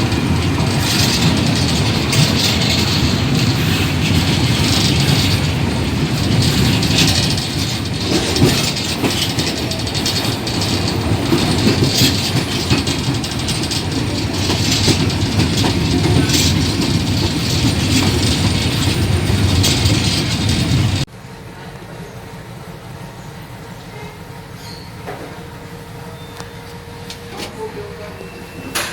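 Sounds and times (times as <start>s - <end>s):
wheels clacking over rails: 0.0s - 21.1s
train rumbling along track: 0.0s - 28.9s.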